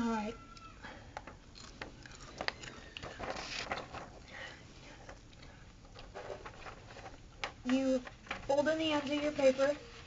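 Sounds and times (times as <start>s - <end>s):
paper rustling and crackling: 2.5s - 4.2s, 5.9s - 10.0s.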